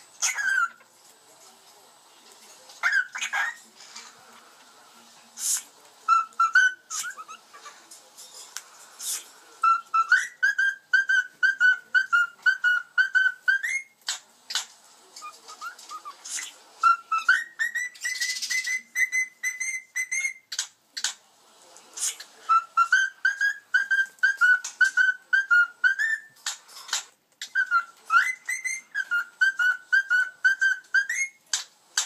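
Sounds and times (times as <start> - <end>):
cockatiels whistling: 0.2 - 0.8, 2.8 - 3.6, 6.1 - 7.4, 9.6 - 14.6, 15.2 - 20.7, 22.4 - 26.6, 27.4 - 31.6.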